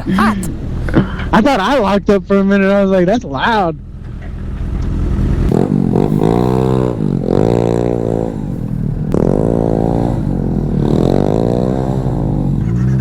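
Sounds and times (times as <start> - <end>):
wind rumble: 0.0 - 12.7
motorcycle engine revving: 3.7 - 13.0.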